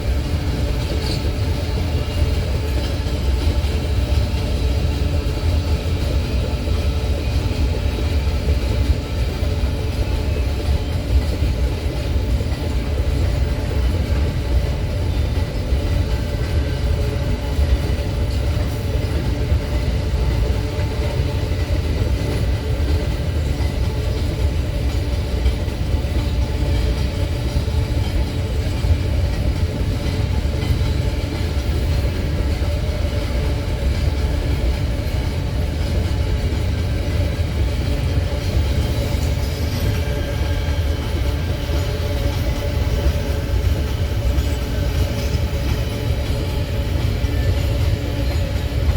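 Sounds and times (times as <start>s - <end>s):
freight wagons rolling on rails: 0.0s - 48.9s.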